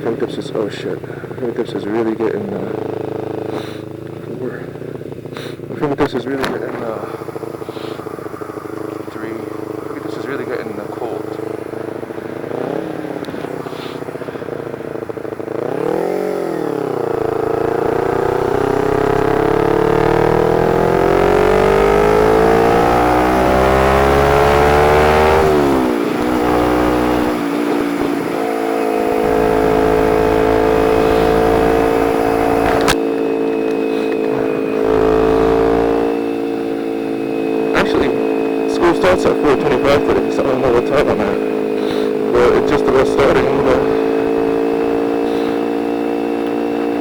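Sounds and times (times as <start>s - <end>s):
motorcycle engine accelerating: 0.0s - 47.0s.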